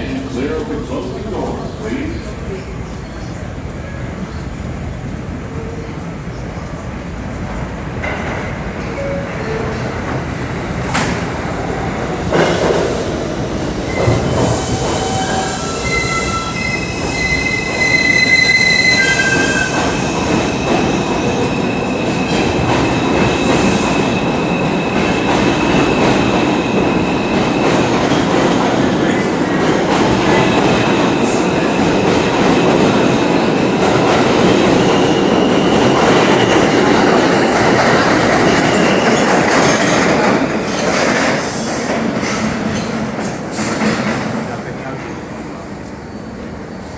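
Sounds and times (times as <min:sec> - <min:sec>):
high wheel squeal: 0:13.9 - 0:22.4.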